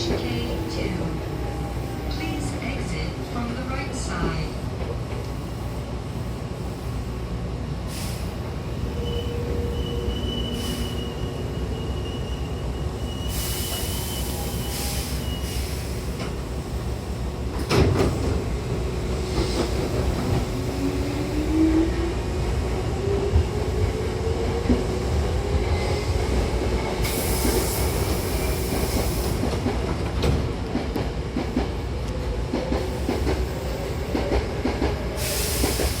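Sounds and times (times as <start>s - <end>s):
train doors banging shut: 17.5s - 18.5s.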